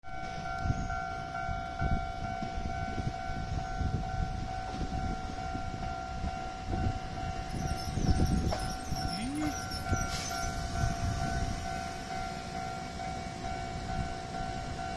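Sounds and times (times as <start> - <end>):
level crossing alarm pulsing tone: 6.8 - 13.2.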